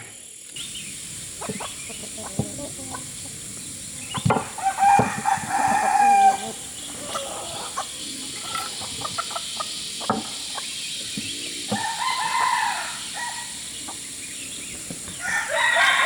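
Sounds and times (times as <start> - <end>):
rooster crowing: 1.4 - 8.9, 11.7 - 13.8, 15.1 - 16.0.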